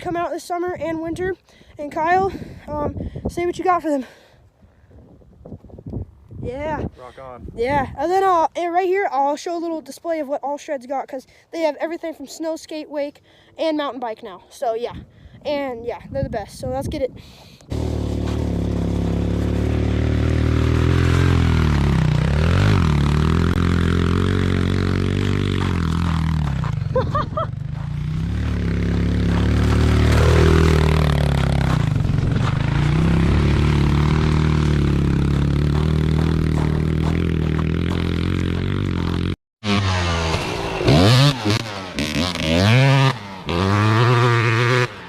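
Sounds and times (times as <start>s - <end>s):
dirt bike engine revving: 17.7s - 45.0s.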